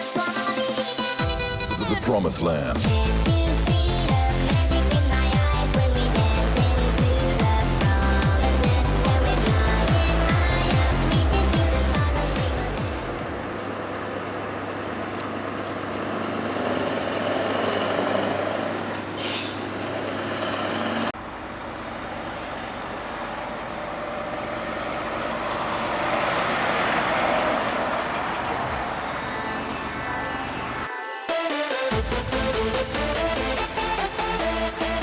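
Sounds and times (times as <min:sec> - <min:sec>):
heavy trucks driving past: 0:15.5 - 0:35.0.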